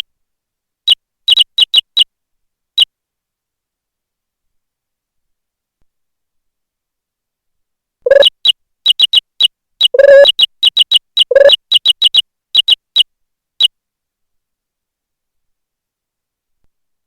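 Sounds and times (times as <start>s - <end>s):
synthetic key-press chirps: 8.1s - 12.8s.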